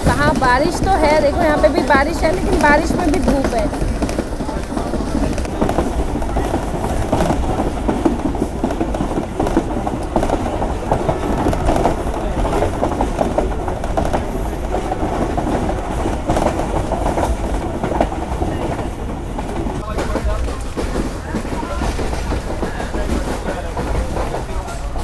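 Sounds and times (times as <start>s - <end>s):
train wheels clattering on rails: 0.0s - 25.0s.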